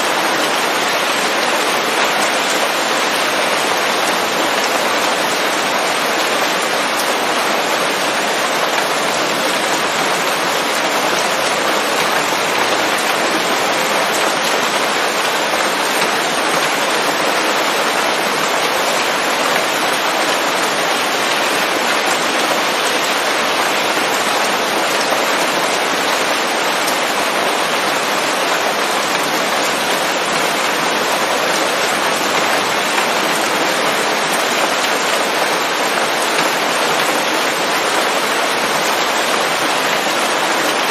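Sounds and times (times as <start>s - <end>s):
rain falling on leaves: 0.0s - 40.9s.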